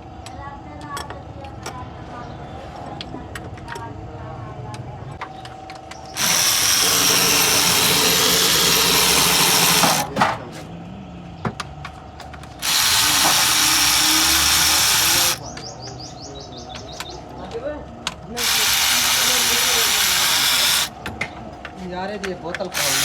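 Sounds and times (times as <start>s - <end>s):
workshop tool rushing hiss: 6.2s - 10.1s, 12.6s - 15.4s, 18.4s - 20.9s.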